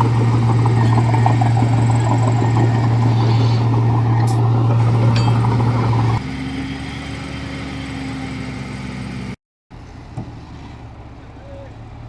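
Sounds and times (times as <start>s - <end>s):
heavy machine diesel engine running: 0.0s - 9.3s.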